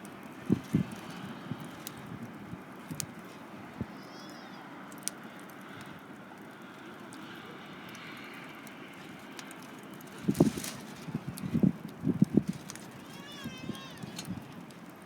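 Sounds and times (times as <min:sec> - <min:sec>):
steady background noise: 0:00.0 - 0:15.0
wood fire crackling: 0:00.0 - 0:15.0.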